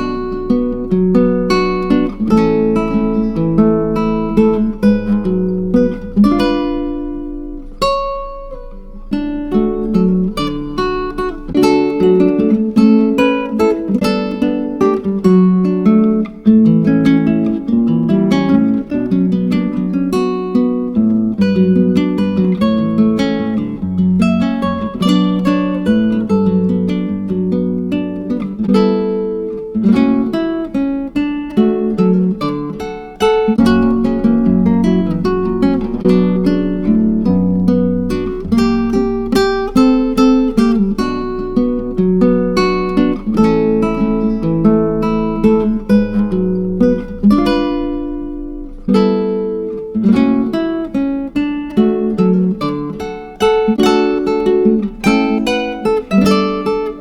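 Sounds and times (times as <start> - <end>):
acoustic guitar picking and strumming: 0.0 - 57.0.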